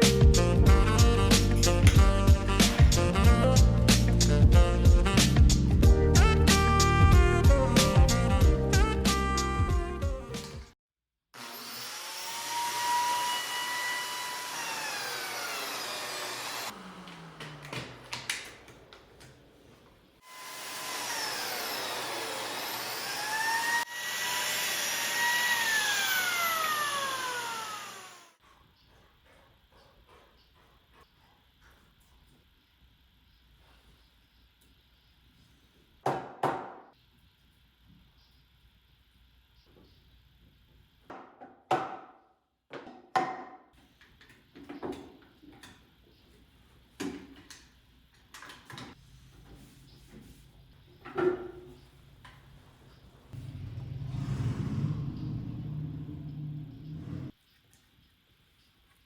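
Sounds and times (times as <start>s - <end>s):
power tool motor whining: 11.4s - 18.3s, 20.2s - 28.4s, 53.4s - 57.3s.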